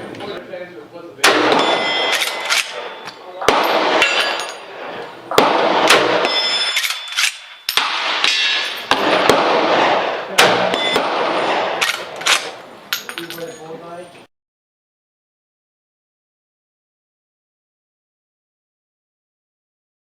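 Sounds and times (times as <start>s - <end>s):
rifle shots echoing: 1.2s - 13.4s.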